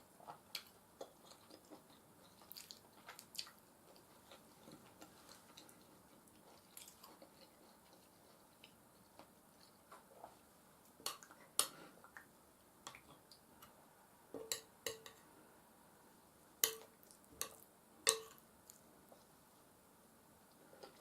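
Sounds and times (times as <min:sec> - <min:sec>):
cutlery clinking against a plate: 0:14.4 - 0:15.2, 0:16.6 - 0:18.4.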